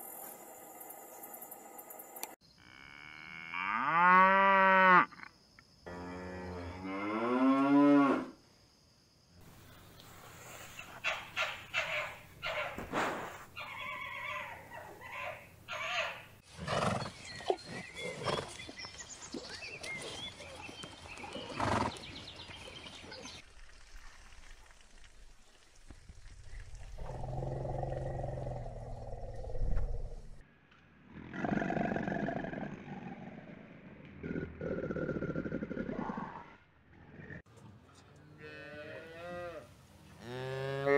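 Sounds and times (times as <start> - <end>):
zebras barking calls: 10.8 - 12.8, 13.6 - 16.3
fox shrill cries: 13.6 - 16.3.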